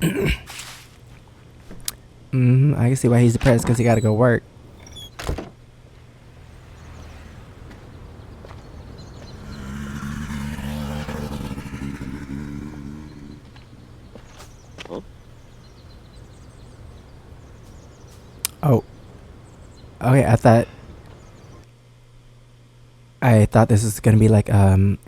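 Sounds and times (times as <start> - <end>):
vehicle passing by: 5.8 - 18.3.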